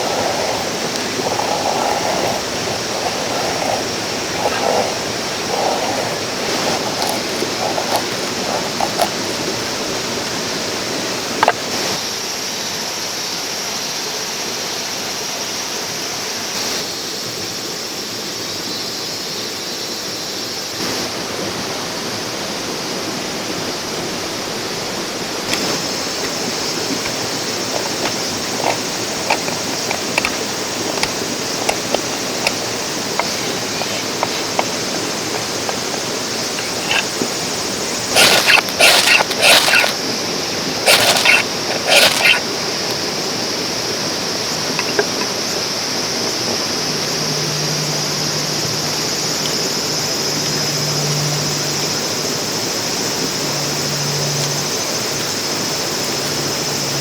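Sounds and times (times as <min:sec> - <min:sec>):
small ticks: 0:00.0 - 0:09.4, 0:26.2 - 0:37.3, 0:38.1 - 0:40.0, 0:40.8 - 0:42.4
stream running over rocks: 0:00.0 - 0:16.6, 0:20.9 - 0:47.4.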